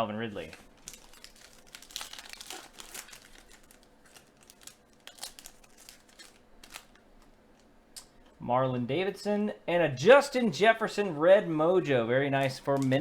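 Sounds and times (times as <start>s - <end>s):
foil wrapper crinkling and tearing: 0.3s - 7.0s.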